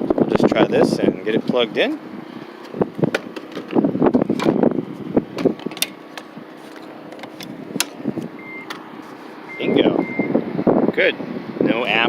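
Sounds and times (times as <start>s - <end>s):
connector latching clicks: 5.4s - 6.3s, 7.1s - 8.8s
short high beep: 9.5s - 10.4s.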